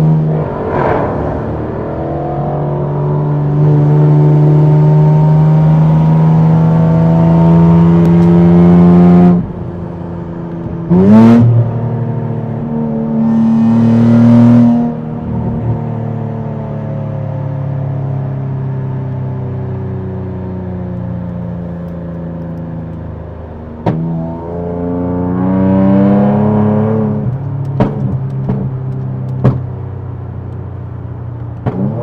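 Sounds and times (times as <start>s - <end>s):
car engine revving hard: 10.9s - 11.7s.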